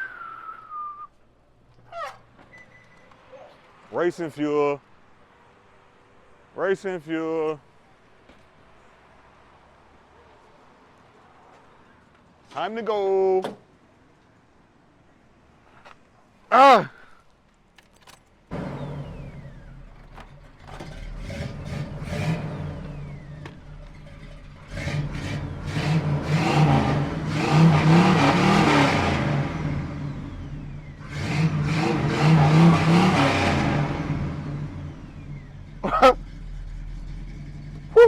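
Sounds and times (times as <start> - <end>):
car engine starting and revving: 18.5 - 38.0.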